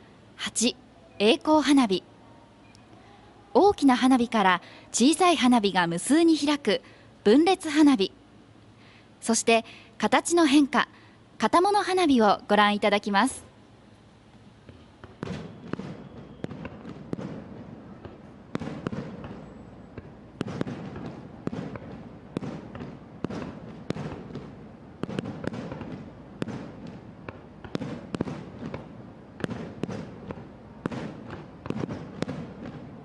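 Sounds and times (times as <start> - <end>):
firework shells bursting: 14.7 - 33.0.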